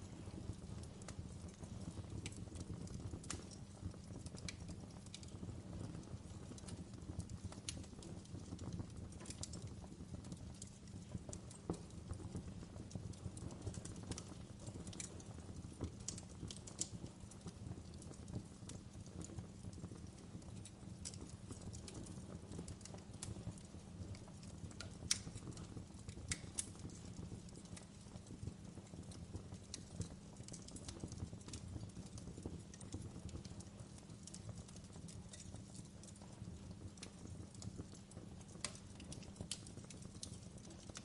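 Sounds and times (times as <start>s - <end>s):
low rumble of flames: 0.0s - 41.0s
firewood popping and snapping: 2.2s - 5.4s, 6.6s - 9.7s, 14.9s - 28.2s, 28.8s - 41.0s.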